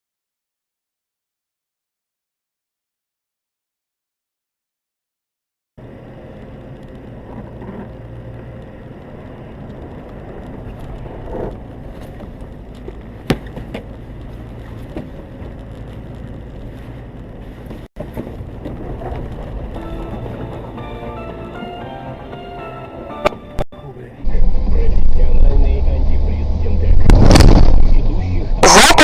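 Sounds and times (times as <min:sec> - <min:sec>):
car engine and road rumble: 0:05.8 - 0:29.0.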